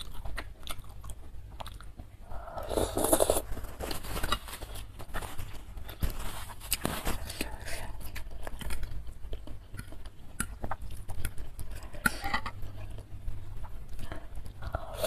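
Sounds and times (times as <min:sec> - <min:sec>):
chewing and wet mouth sounds: 0:00.0 - 0:15.0.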